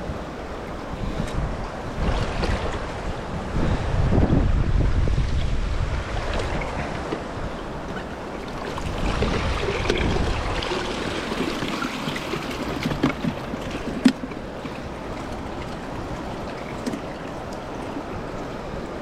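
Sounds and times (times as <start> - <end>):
wind buffeting microphone: 0.0 - 19.0
river water rushing over stones: 5.4 - 19.0.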